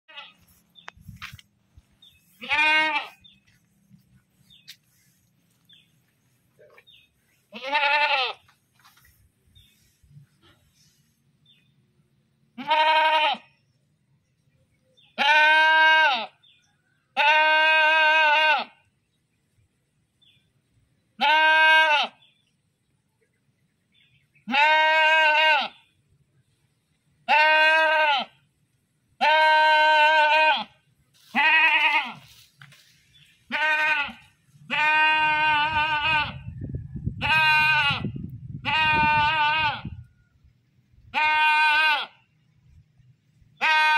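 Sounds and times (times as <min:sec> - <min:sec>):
goat bleating: 0:00.1 - 0:00.6, 0:02.1 - 0:03.6, 0:06.6 - 0:08.5, 0:12.6 - 0:13.5, 0:15.2 - 0:16.4, 0:17.2 - 0:18.9, 0:21.2 - 0:22.2, 0:24.4 - 0:25.9, 0:27.2 - 0:28.4, 0:29.2 - 0:32.4, 0:33.4 - 0:36.5, 0:37.2 - 0:40.0, 0:41.1 - 0:42.2, 0:43.6 - 0:43.9.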